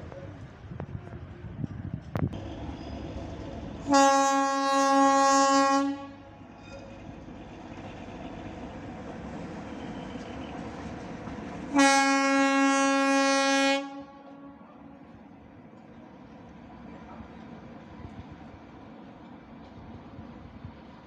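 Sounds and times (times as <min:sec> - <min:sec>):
locomotive horn blasts: 0:03.9 - 0:06.3, 0:11.7 - 0:14.8.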